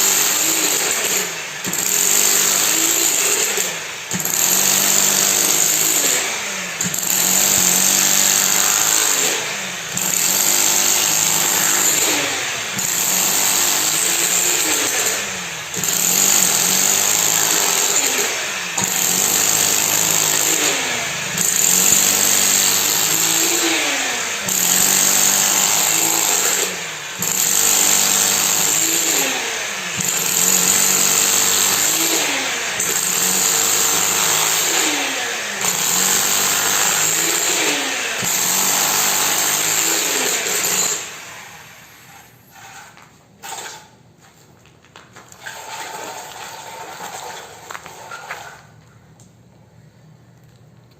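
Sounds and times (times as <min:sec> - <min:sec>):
concrete machine running: 0:00.0 - 0:43.7, 0:45.4 - 0:48.6.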